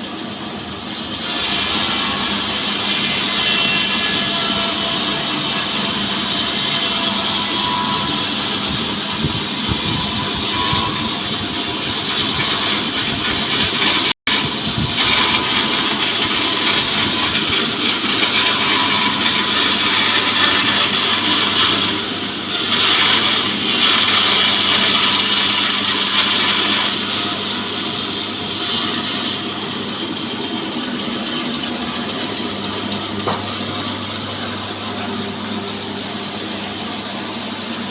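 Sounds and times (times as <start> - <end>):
chainsaw sawing a log: 11.6 - 29.6.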